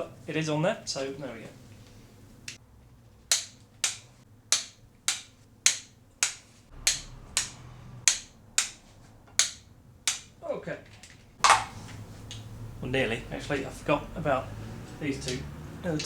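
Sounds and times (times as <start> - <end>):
torque wrench clicking: 3.3 - 10.4.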